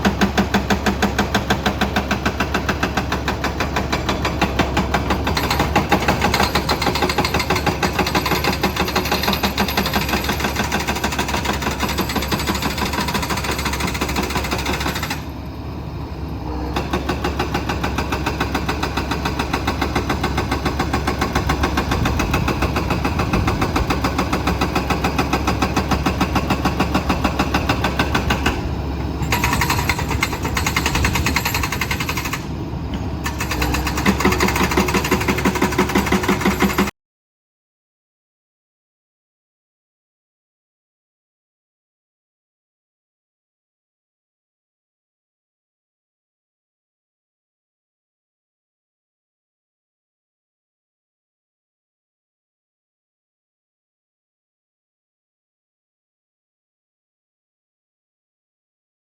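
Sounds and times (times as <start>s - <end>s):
diesel engine knocking: 0.0s - 15.3s, 16.7s - 32.6s, 33.2s - 36.9s.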